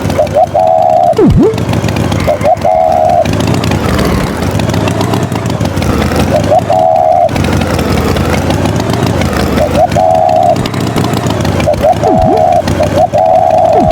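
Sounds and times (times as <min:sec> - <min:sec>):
tractor engine running: 0:00.0 - 0:13.9
high double tone: 0:00.7 - 0:01.6, 0:11.7 - 0:13.9.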